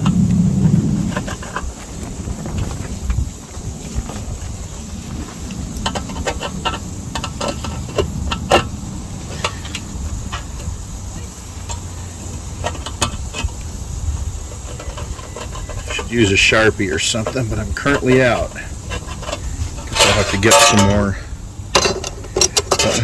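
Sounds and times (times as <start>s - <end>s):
steady low rumble: 0.0s - 22.8s
light clicks and taps on metal: 5.4s - 13.8s, 14.5s - 23.0s.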